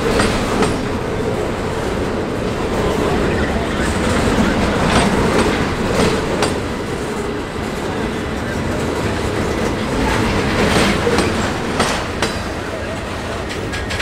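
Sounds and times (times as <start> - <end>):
train wheels rumbling on rail: 0.0 - 14.0
wheels clicking on track: 0.0 - 14.0.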